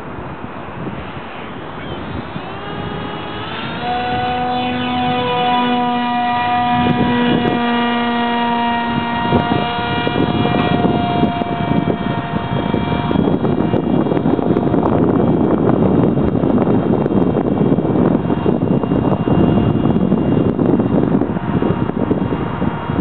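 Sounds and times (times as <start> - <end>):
propeller aircraft engine: 0.0 - 23.0
wind buffeting microphone: 0.0 - 23.0.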